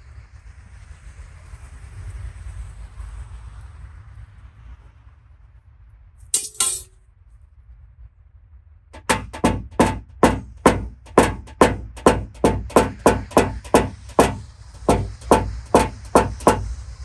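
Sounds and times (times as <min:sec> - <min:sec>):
hammer tapping sheet metal: 0:06.4 - 0:06.9, 0:09.0 - 0:16.8.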